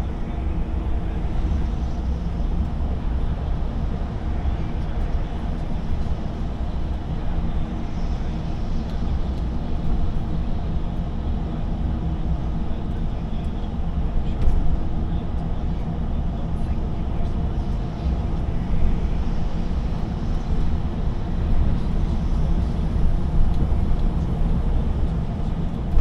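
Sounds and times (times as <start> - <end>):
lorry engine drone: 0.0 - 26.0
road noise: 15.4 - 26.0.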